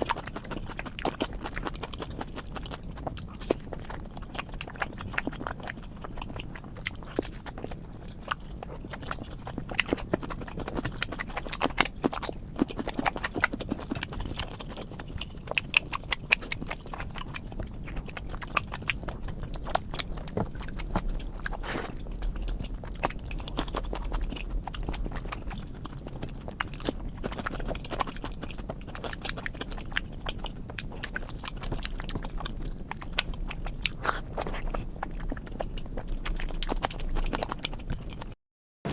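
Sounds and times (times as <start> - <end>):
person chewing: 0.0 - 38.9.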